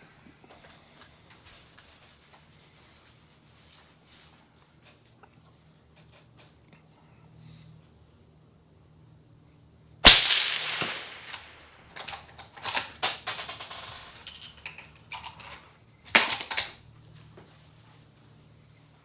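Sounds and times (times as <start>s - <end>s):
suppressed rifle shot: 10.0s - 11.7s
rifle bolt clicking and clacking: 10.1s - 13.0s.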